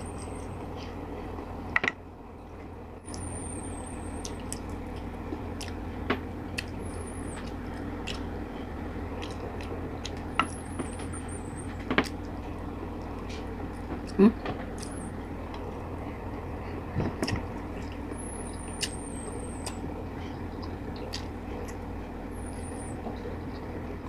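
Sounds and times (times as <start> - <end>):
low hum and hiss: 0.0 - 24.0
chewing and lip smacks: 7.4 - 8.3, 9.1 - 10.3, 16.9 - 21.8.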